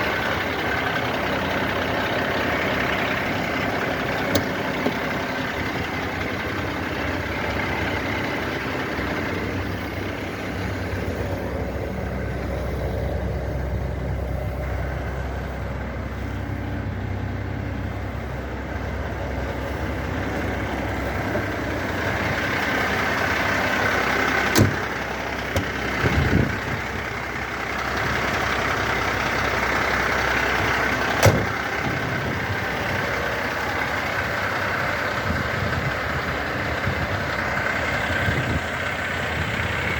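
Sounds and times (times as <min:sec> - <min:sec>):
diesel engine idling: 0:00.0 - 0:39.9
sharp knocks: 0:31.2 - 0:31.6.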